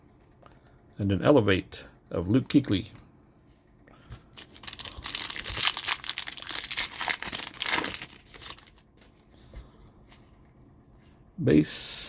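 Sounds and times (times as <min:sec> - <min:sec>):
wrapper crinkling and tearing: 0:04.3 - 0:09.0.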